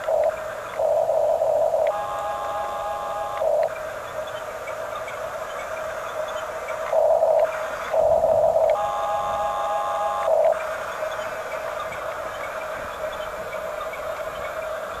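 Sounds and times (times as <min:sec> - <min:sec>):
small electric motors whining: 0:00.0 - 0:04.4, 0:06.3 - 0:14.9.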